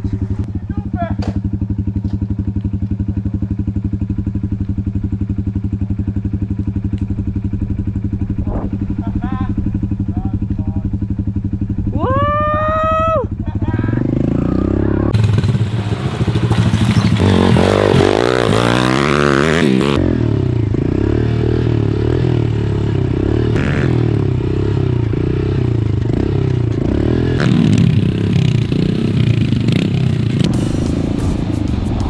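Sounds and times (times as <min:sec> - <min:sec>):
small motorbike engine revving: 0:14.2 - 0:20.2, 0:27.0 - 0:30.6.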